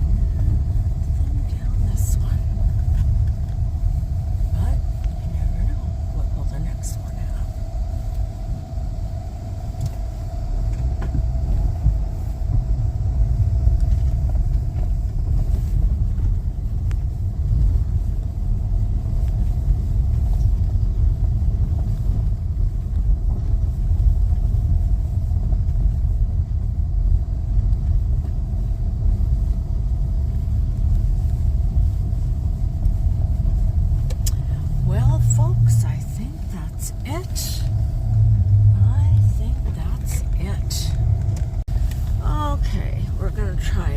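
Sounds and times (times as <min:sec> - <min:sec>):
faint mid-pitched hum: 0:00.0 - 0:43.9
vehicle road noise rumble: 0:00.0 - 0:43.9.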